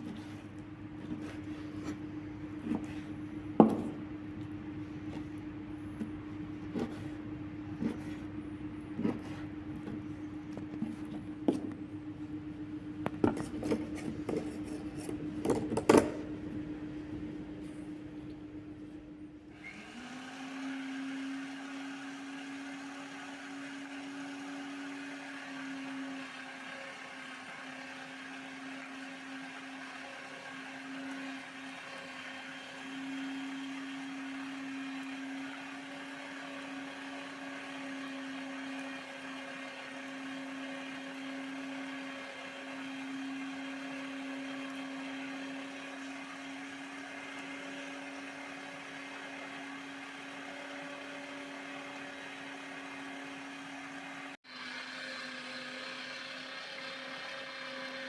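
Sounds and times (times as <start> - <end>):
electric meat grinder motor: 19.5 - 58.0.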